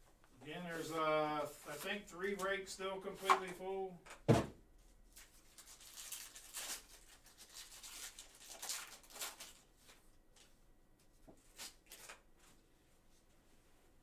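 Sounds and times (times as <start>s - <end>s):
cards rustling and shuffling: 0.7s - 3.7s, 5.1s - 12.6s
knock: 4.3s - 4.6s.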